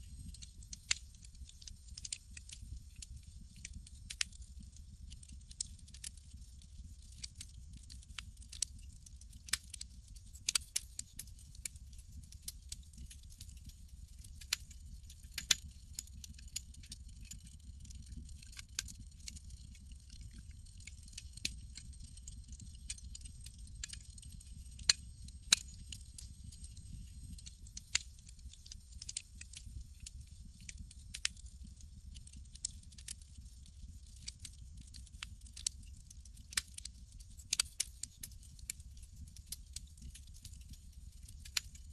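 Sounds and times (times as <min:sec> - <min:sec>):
low rumble of fire: 0:00.0 - 0:41.9
burning wood popping: 0:18.3 - 0:28.0.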